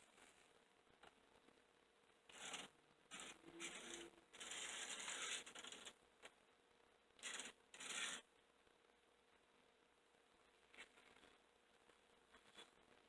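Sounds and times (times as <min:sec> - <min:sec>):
model train motor and gears: 0:02.3 - 0:05.9, 0:07.2 - 0:08.2.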